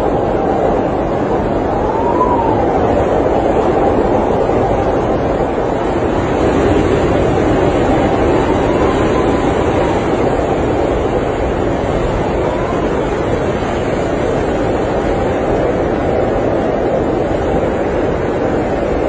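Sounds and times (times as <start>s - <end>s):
blizzard wind blowing: 0.0s - 19.0s.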